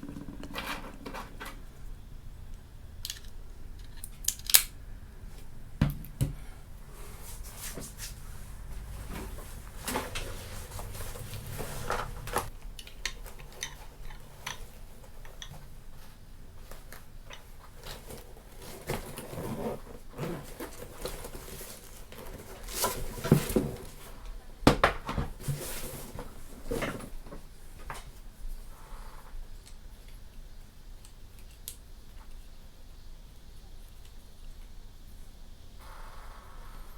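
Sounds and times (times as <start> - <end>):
small hard parts clicking: 0.0 - 4.8.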